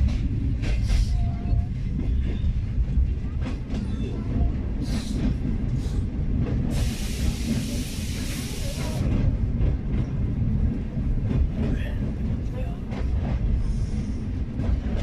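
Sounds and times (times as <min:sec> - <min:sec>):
train rumbling: 0:00.0 - 0:15.0
loud steady hiss: 0:06.7 - 0:09.0.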